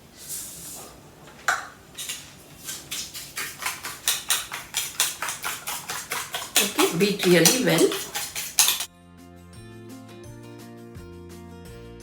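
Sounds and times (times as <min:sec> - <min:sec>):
cutlery beating in a bowl: 0:02.9 - 0:08.9.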